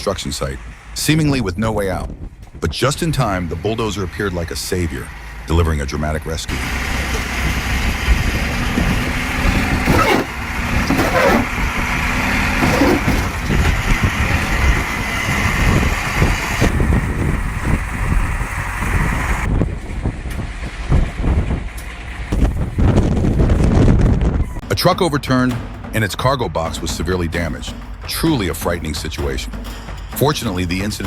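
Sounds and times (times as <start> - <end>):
heavy vehicle engines rumbling: 0.0 - 31.0.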